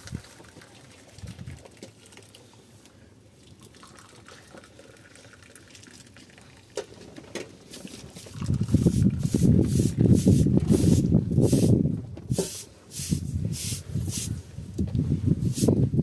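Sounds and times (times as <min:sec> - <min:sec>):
water trickling: 0:03.4 - 0:06.8.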